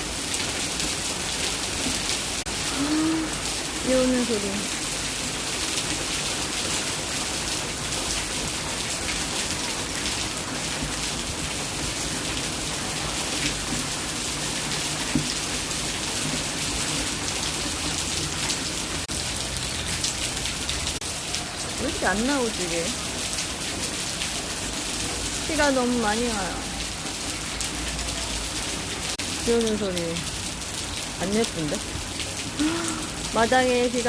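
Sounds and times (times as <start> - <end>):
heavy rain falling: 0.0 - 34.0.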